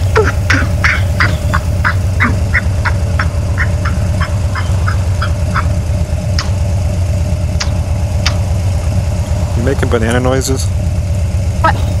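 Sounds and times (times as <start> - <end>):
person making clucking noises: 0.0 - 5.8
motorcycle engine drone: 0.0 - 12.0.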